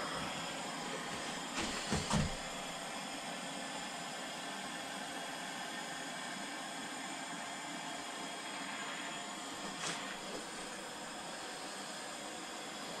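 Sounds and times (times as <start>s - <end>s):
torch flame hissing: 0.0s - 2.8s.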